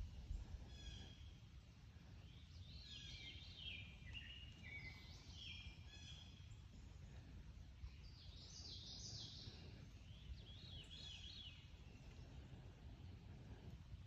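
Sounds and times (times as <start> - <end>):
low steady rumble: 0.0 - 14.0
songbirds chirping and warbling: 0.0 - 14.0.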